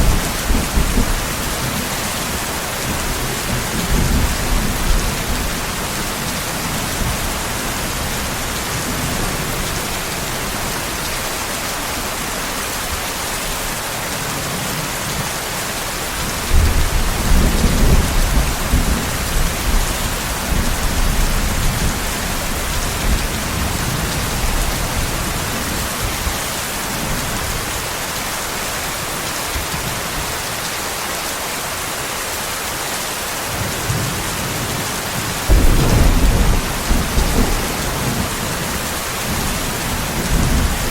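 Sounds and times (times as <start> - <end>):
thunder rumbling: 0.0 - 9.8, 35.5 - 40.9
heavy rain falling: 0.0 - 40.9.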